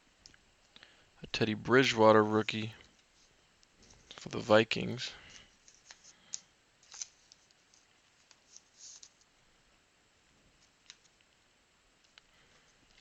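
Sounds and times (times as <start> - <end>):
trading cards clicking and rustling: 5.3 - 9.3.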